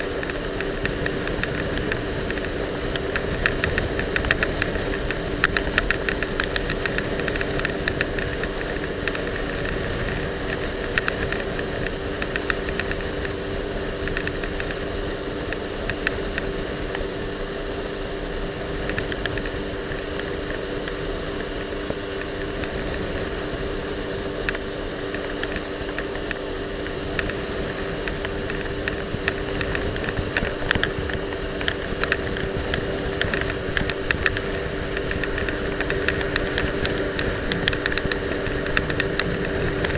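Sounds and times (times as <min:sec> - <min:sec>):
jet ski engine droning: 0:00.0 - 0:39.9
camera rattling clicks: 0:24.5 - 0:39.9.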